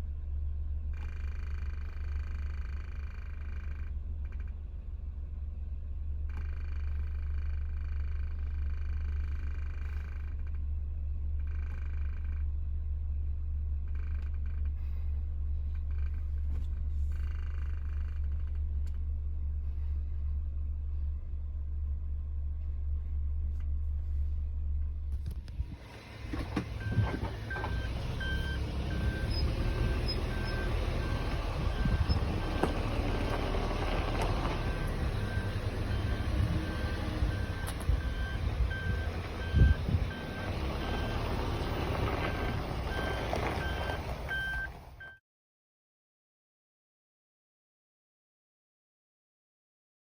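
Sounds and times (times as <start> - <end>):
car engine running: 0.0 - 45.1
engine knocks: 25.2 - 45.0.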